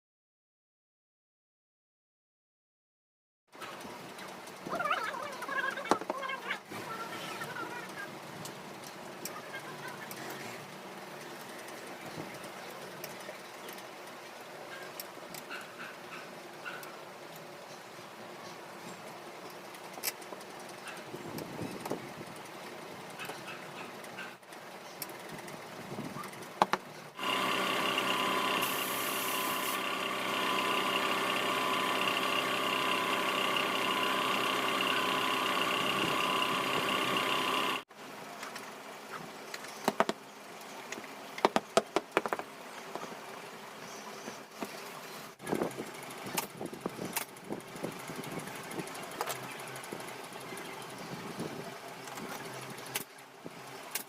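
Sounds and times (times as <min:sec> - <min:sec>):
small electric motor running: 0:27.2 - 0:37.9.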